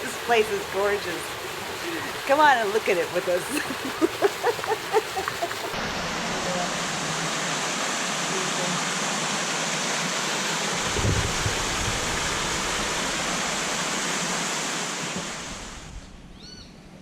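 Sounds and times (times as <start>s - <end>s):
waterfall rushing: 0.0s - 16.0s
wind buffeting microphone: 10.8s - 13.4s.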